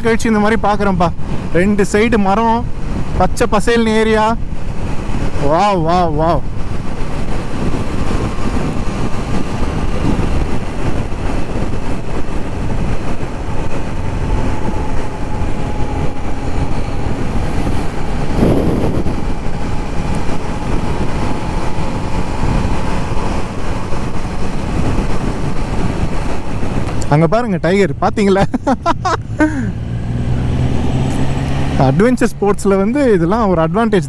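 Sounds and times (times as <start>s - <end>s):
road noise: 0.0s - 34.0s
wind rush on microphone: 0.0s - 34.0s
motorcycle engine: 4.4s - 27.1s.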